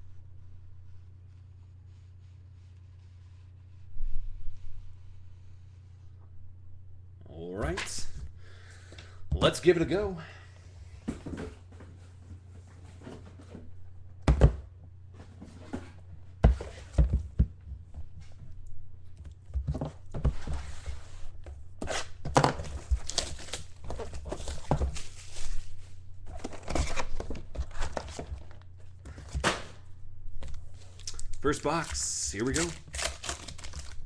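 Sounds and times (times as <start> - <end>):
wrapping tearing and crinkling: 21.9 - 25.7, 30.5 - 34.0.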